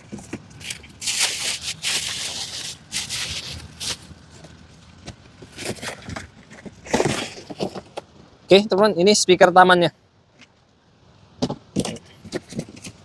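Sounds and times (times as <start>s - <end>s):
packaging rustling and crinkling: 0.0s - 4.5s.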